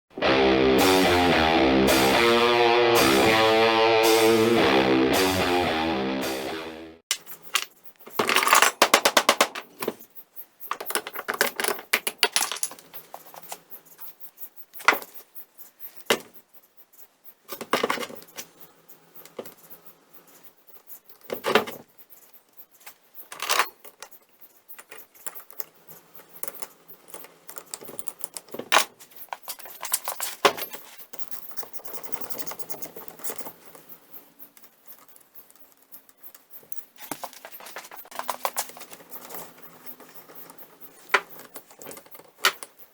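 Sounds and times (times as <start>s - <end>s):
metal tools clinking and clattering: 7.1s - 10.0s, 10.7s - 13.5s, 23.3s - 24.2s, 24.8s - 33.7s.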